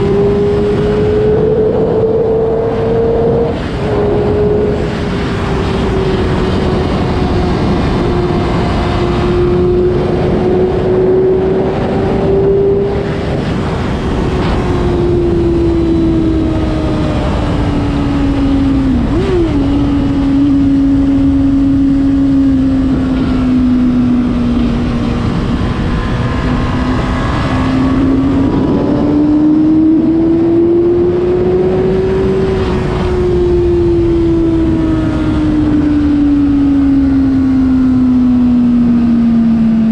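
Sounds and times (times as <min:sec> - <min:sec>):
motorcycle engine at high revs: 0:00.0 - 0:39.9
wind on microphone: 0:00.0 - 0:39.9.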